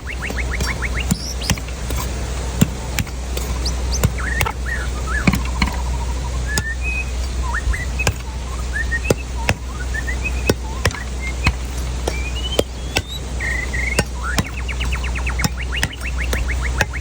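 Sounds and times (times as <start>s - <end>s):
birds chirping: 0.0s - 17.0s
knife chopping coconut: 10.5s - 13.2s.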